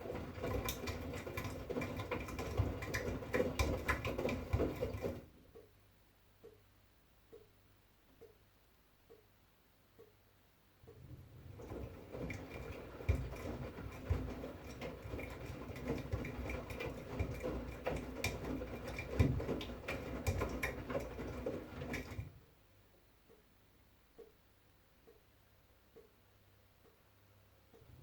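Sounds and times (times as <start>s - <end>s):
laundry and water tumbling: 0.0s - 5.4s, 11.0s - 22.5s
washing machine motor hum: 0.0s - 5.7s, 10.8s - 22.6s.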